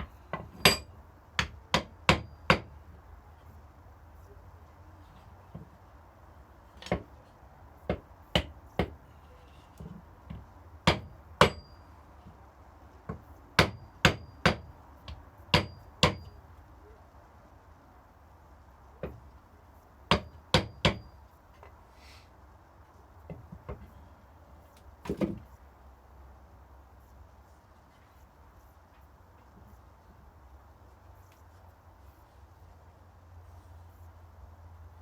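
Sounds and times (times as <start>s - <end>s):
small hammer tapping wood: 13.1s - 16.3s, 20.1s - 21.1s.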